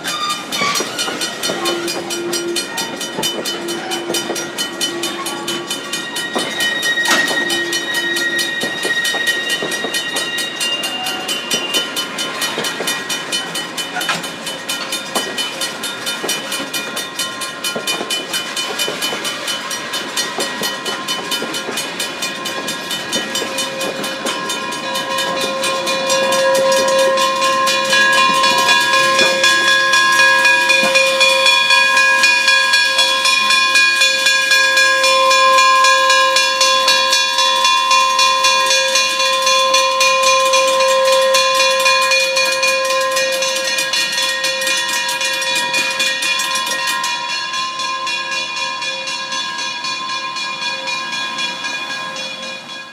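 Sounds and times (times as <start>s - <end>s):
high-pitched multi-note whistle tone: 0.0s - 12.9s, 23.3s - 48.8s
steam locomotive pulsing beat: 0.0s - 52.9s.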